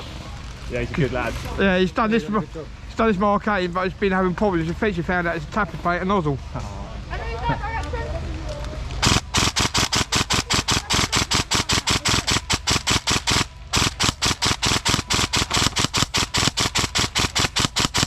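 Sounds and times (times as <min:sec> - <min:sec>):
airsoft rifle firing rapidly: 0:09.0 - 0:18.0.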